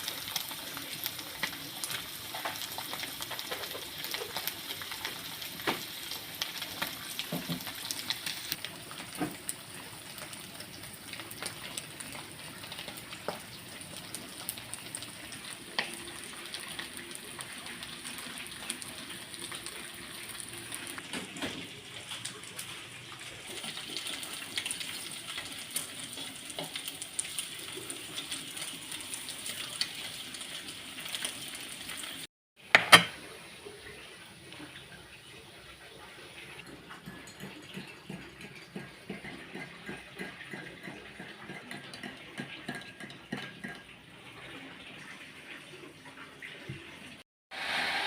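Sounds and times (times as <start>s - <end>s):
oil crackling and popping: 0.0s - 33.1s
food sizzling in hot oil: 0.0s - 43.8s, 47.5s - 48.0s.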